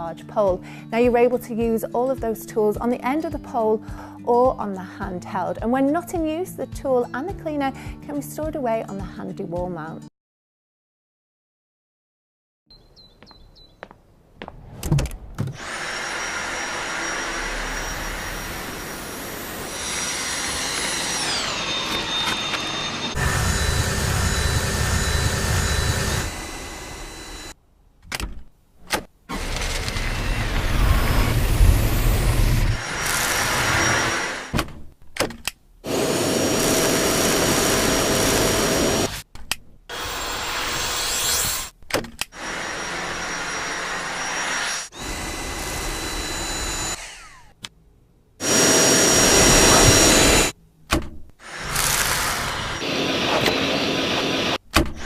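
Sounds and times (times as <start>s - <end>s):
vacuum cleaner motor whining: 15.6s - 27.6s, 29.3s - 34.5s, 35.8s - 39.2s, 42.4s - 47.5s, 48.4s - 50.6s, 51.5s - 54.6s.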